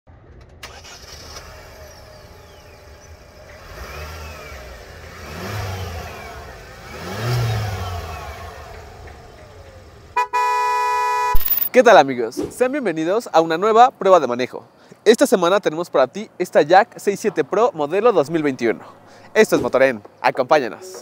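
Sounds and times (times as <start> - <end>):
car engine revving: 0.6 - 10.2.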